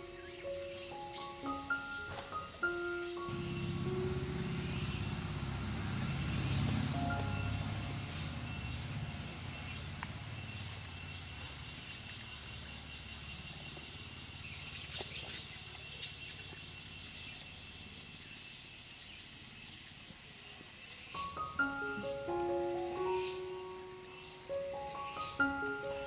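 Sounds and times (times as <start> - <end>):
piano music: 0.0 - 10.5, 21.2 - 26.0
low rumble: 3.3 - 11.4.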